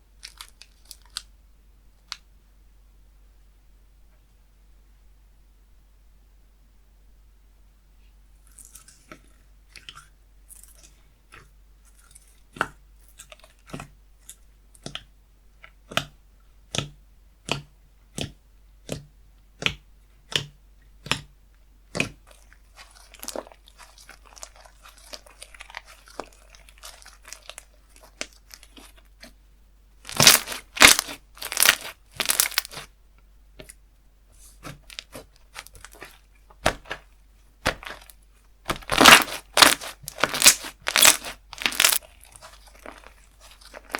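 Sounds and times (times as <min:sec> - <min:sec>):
sticky popping clicks of slime: 0:14.8 - 0:15.1, 0:15.8 - 0:21.3
slime crackling as stretched: 0:22.3 - 0:29.1, 0:30.0 - 0:32.9, 0:34.7 - 0:37.0, 0:37.6 - 0:43.9.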